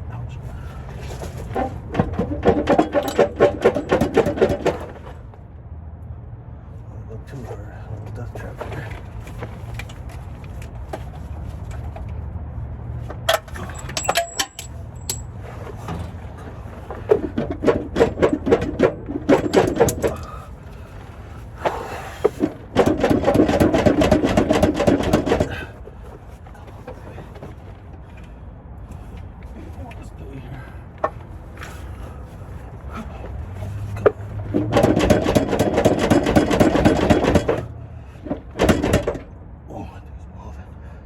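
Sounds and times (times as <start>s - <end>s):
impact wrench hammering: 2.2s - 4.9s, 13.3s - 15.3s, 22.8s - 25.6s.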